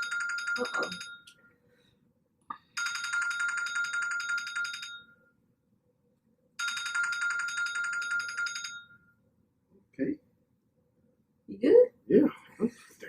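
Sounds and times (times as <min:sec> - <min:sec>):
electronic telephone ringing: 0:00.0 - 0:01.4, 0:02.7 - 0:05.3, 0:06.6 - 0:09.1.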